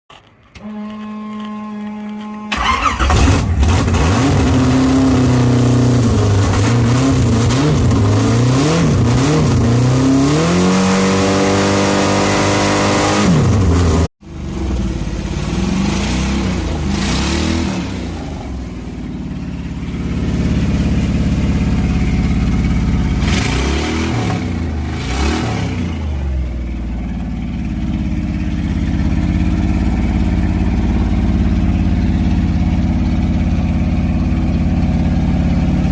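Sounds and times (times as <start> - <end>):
car engine revving: 2.5 - 35.9.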